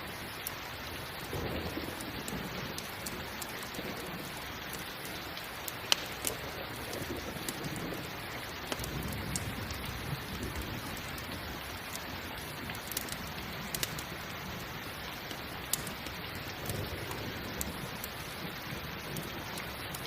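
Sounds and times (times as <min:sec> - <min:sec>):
campfire popping and crackling: 0:00.0 - 0:20.0
steady rain: 0:00.0 - 0:20.0.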